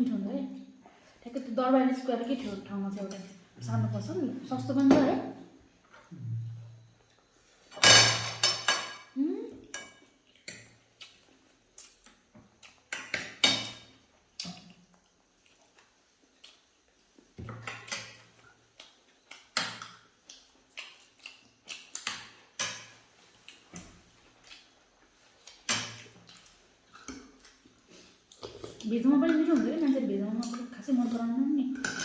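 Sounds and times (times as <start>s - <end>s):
mouth noises of eating: 23.4s - 28.9s.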